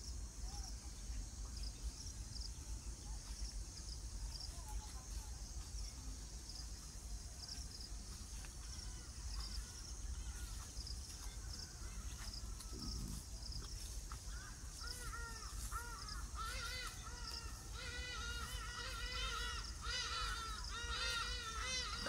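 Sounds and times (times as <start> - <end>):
bird calling: 14.3 - 22.0.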